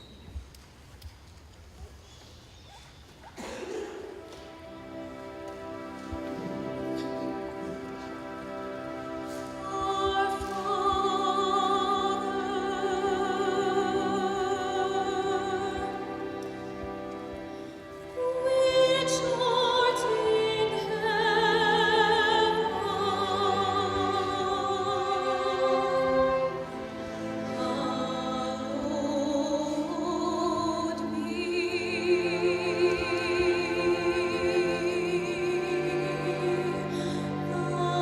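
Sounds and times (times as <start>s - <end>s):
sustained instrumental accompaniment: 3.7s - 38.0s
soprano singing operatically: 8.2s - 17.0s, 18.0s - 38.0s.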